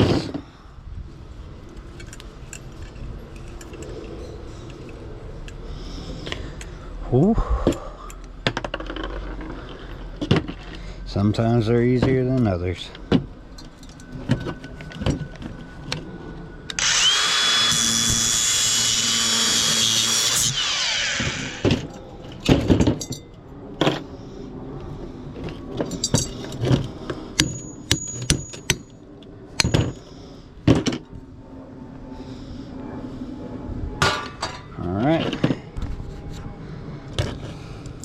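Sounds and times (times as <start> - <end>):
power drill whining: 16.7 - 21.8
sharp knocks and clinks: 22.5 - 23.4, 25.8 - 26.7, 27.4 - 28.9.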